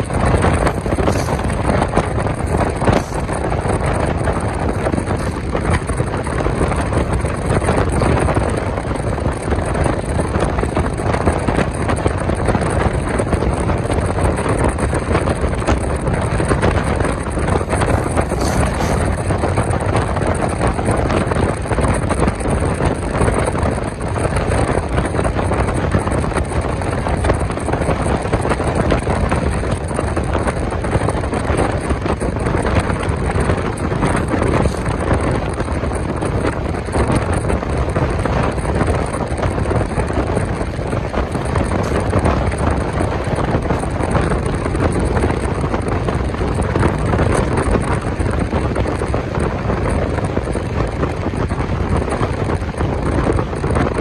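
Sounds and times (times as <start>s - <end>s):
train wheels rumbling on rails: 0.0s - 54.0s
wind noise on microphone: 0.0s - 54.0s.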